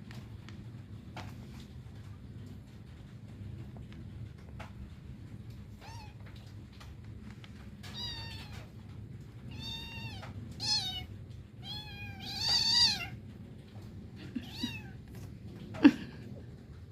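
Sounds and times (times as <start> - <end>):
cat meowing: 5.8 - 6.3, 7.8 - 8.7, 9.5 - 13.2, 14.3 - 15.0.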